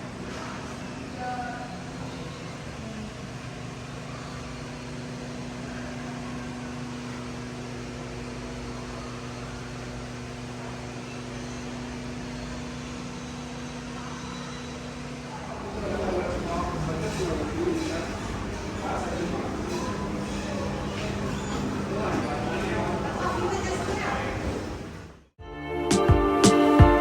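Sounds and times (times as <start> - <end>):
low mechanical hum: 0.0 - 25.4.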